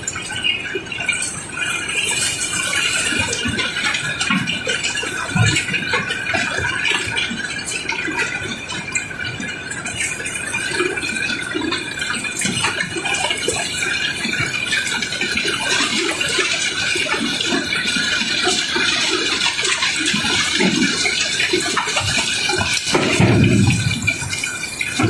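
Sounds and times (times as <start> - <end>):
cobblestones tumbling and clattering: 18.6 - 25.0.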